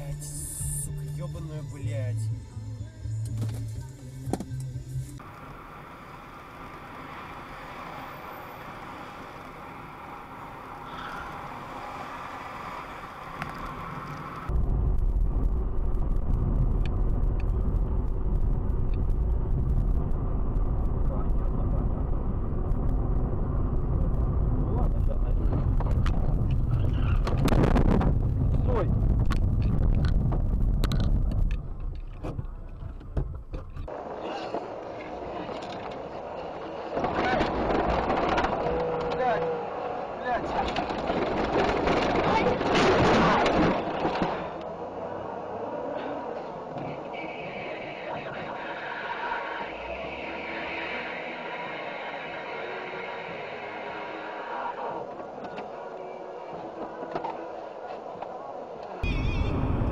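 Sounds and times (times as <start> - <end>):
car road noise: 0.0 - 59.9
low rumble of highway driving: 0.0 - 59.9.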